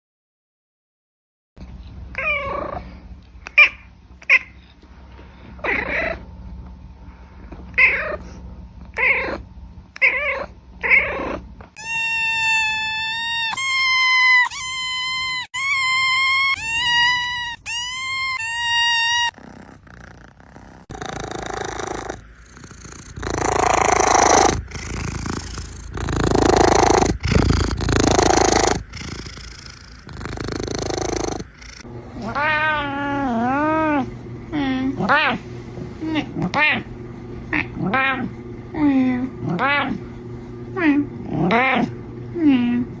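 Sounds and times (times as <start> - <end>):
cat meowing: 10.0 - 19.6.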